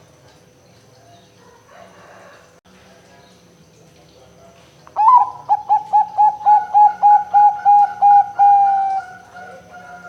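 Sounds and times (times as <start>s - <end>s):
dove cooing: 5.0s - 10.0s.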